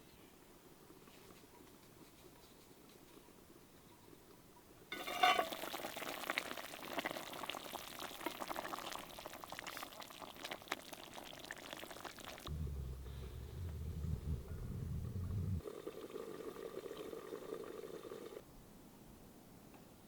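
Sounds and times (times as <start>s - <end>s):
food sizzling in a hot pan: 4.9s - 12.4s.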